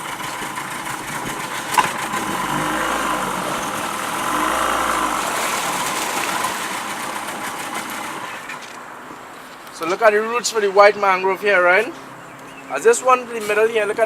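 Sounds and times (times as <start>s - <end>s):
outboard motor humming: 0.0s - 8.6s.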